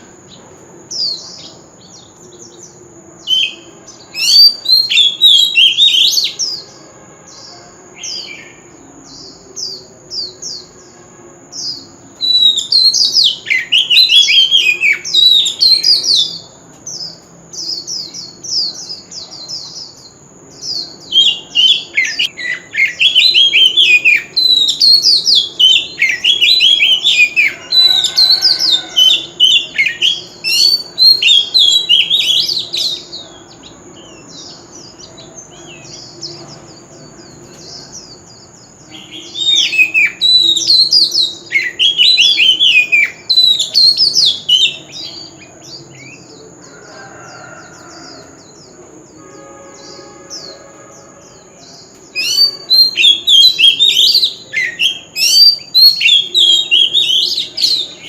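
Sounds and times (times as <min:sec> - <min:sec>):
bird singing whistled phrases: 0:03.3 - 0:06.6, 0:11.6 - 0:16.5, 0:20.9 - 0:33.2, 0:38.9 - 0:45.3, 0:52.1 - 0:58.0.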